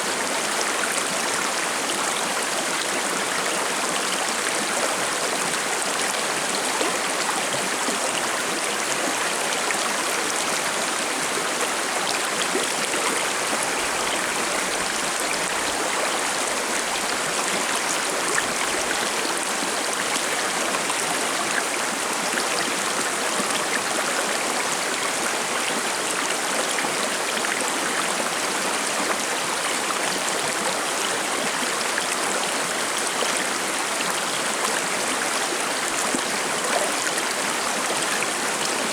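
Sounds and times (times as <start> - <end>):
stream babbling over rocks: 0.0 - 38.9.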